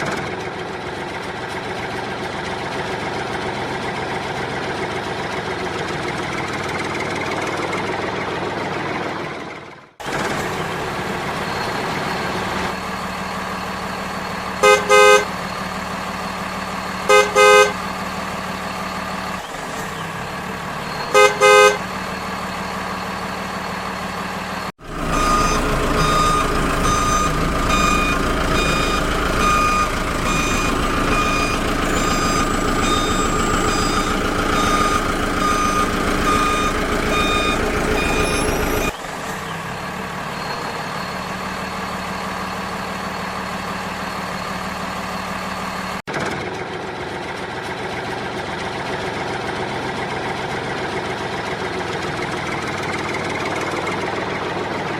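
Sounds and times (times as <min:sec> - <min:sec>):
truck engine running: 0:00.0 - 0:54.9
truck horn toots: 0:14.5 - 0:15.6, 0:17.0 - 0:18.2, 0:21.0 - 0:22.4, 0:25.0 - 0:38.9
reversing beeps: 0:20.7 - 0:39.0, 0:40.2 - 0:46.0.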